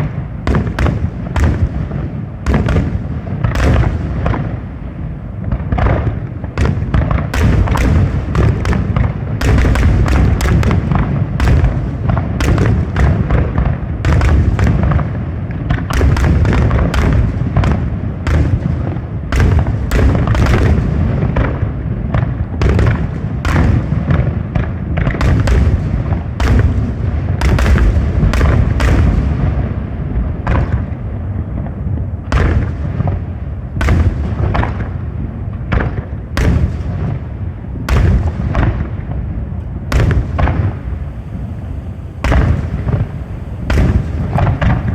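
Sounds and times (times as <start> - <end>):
firework shell bursts: 5.8 - 15.0, 37.9 - 44.9
deep rumble: 23.4 - 44.9.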